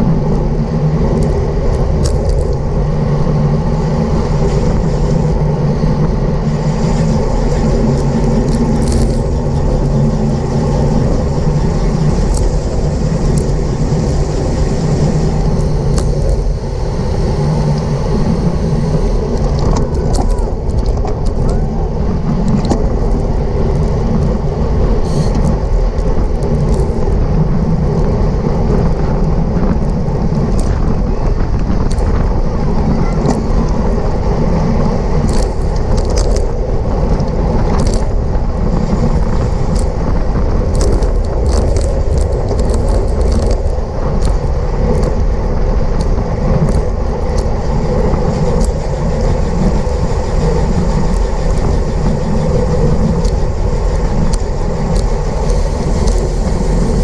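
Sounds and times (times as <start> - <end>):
wind rushing over microphone: 0.0 - 57.0
sharp clicks from bike: 1.1 - 2.7, 6.8 - 13.7, 15.4 - 16.6, 25.0 - 27.3, 28.7 - 32.3, 35.2 - 45.3.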